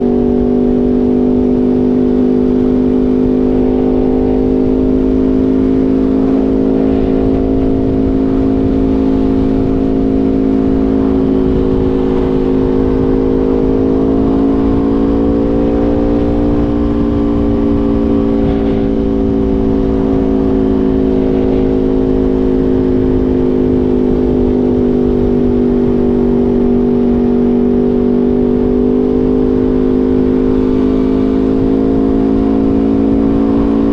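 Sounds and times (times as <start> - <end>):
motorcycle engine running loud: 0.0 - 33.9.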